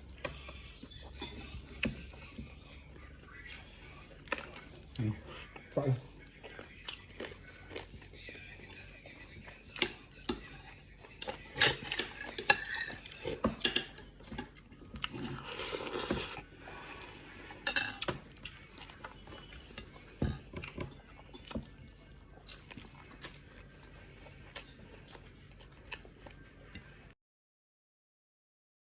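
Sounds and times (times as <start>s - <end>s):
cutlery clinking against dishes: 1.0s - 2.4s, 9.7s - 10.6s, 11.2s - 16.4s, 17.5s - 21.8s.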